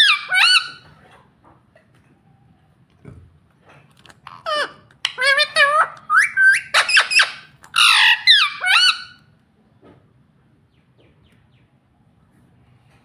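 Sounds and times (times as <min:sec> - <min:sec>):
parakeet squawking: 0:00.0 - 0:00.9, 0:04.3 - 0:09.3.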